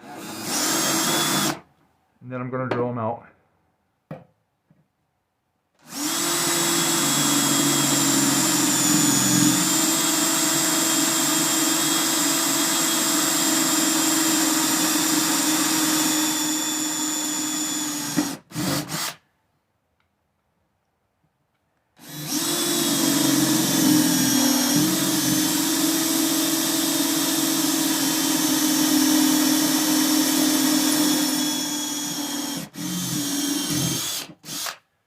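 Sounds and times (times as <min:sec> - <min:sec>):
electric drill drilling sheet metal: 0:00.0 - 0:01.6, 0:05.8 - 0:19.2, 0:22.0 - 0:34.8.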